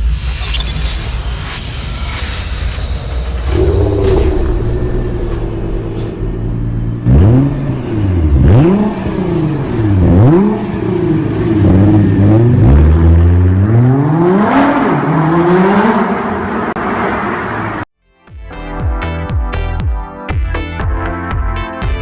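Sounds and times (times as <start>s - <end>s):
car engine idling and revving: 0.0s - 17.9s.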